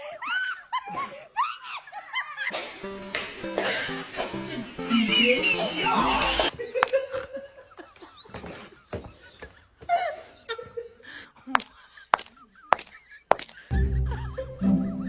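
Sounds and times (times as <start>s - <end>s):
person laughing softly: 6.5s - 15.0s.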